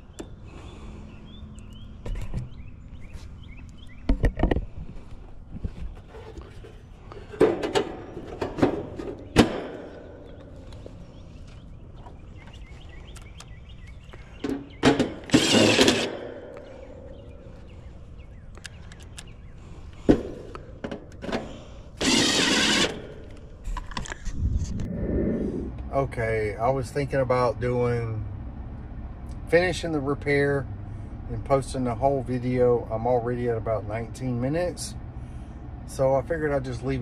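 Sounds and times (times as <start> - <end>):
knocks and clunks of tools: 4.0 - 4.7, 6.0 - 10.8, 14.4 - 16.6, 20.0 - 21.6
power tool running: 14.9 - 16.3, 22.0 - 23.3.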